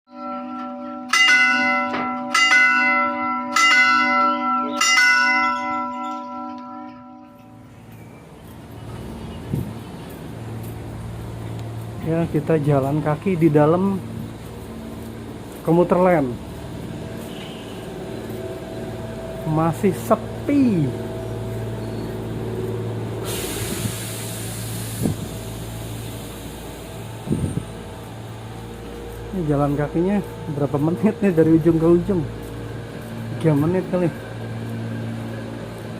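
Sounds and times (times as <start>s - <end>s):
bell-like chime strikes: 0.1s - 8.1s
train interior hum: 5.5s - 35.9s
compressed air hiss: 23.2s - 27.8s.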